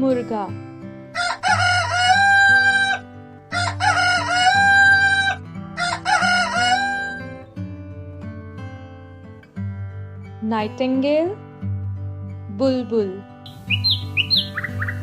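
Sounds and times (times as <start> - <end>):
acoustic guitar music: 0.0 - 15.0
rooster crowing: 1.2 - 3.0, 3.6 - 7.3.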